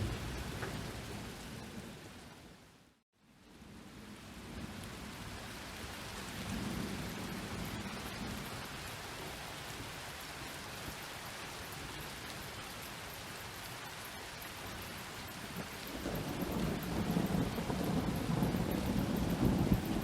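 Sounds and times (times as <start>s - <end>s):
thunder rumble: 0.0s - 2.5s, 3.7s - 8.8s, 15.2s - 20.0s
steady rain: 0.0s - 20.0s.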